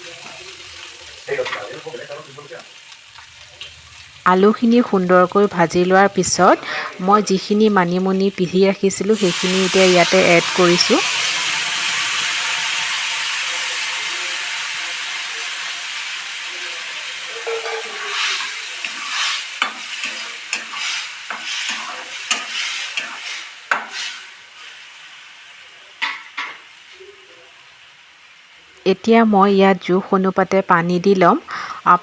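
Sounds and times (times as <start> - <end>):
food sizzling in hot oil: 0.0 - 32.0
spatula scraping a pan: 17.2 - 24.7.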